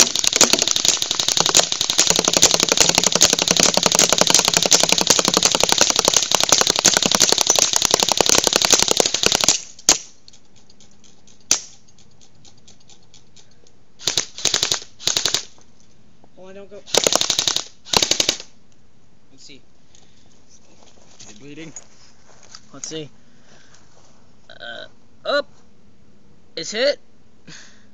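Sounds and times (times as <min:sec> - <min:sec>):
airsoft guns firing: 0:00.0 - 0:10.2, 0:11.5 - 0:11.8, 0:14.0 - 0:15.6, 0:16.9 - 0:18.5.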